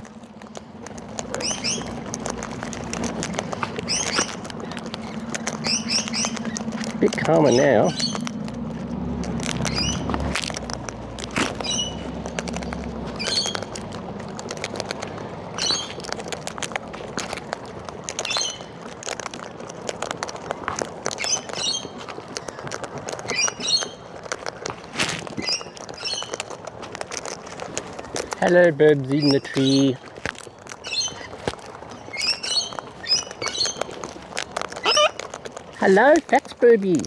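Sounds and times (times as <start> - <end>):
beaks and feet scraping seed: 0.0 - 37.0
cockatoo chirping call: 1.3 - 2.0, 3.8 - 8.4, 9.6 - 10.1, 11.5 - 12.1, 13.2 - 13.8, 30.8 - 31.4, 32.0 - 33.9, 34.8 - 35.3.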